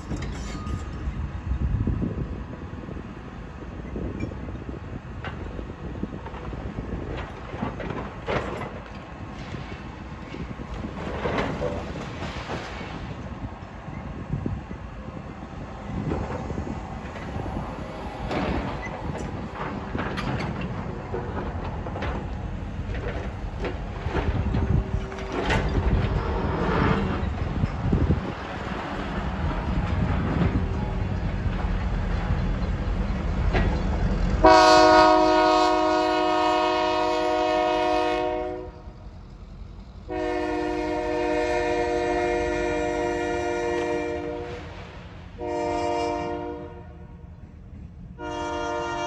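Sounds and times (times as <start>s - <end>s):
heavy machinery low rumble: 0.0s - 37.6s
train horn blasts: 34.4s - 39.0s, 40.1s - 44.8s, 45.4s - 47.3s, 48.2s - 49.0s.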